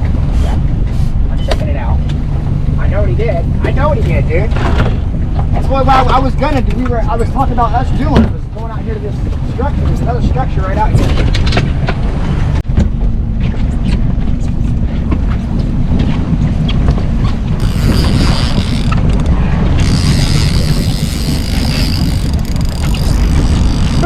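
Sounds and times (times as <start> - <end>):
boat motor rumble: 0.0 - 24.0
wind and water hiss: 0.0 - 24.0
wind buffeting microphone: 0.0 - 24.0.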